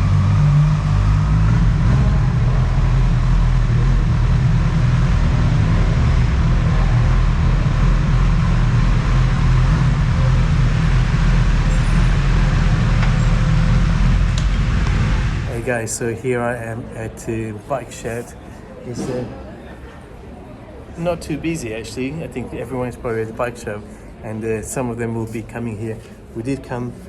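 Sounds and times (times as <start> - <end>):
motorcycle engine and road noise: 0.0 - 15.7.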